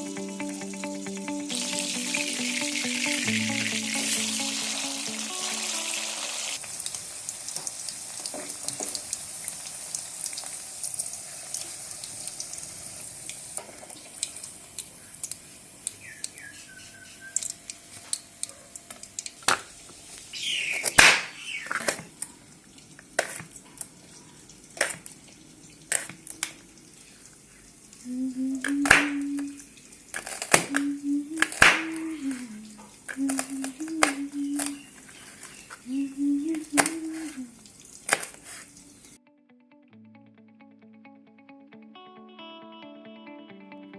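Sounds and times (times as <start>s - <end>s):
food sizzling in a pan: 1.5s - 21.7s, 36.7s - 39.2s.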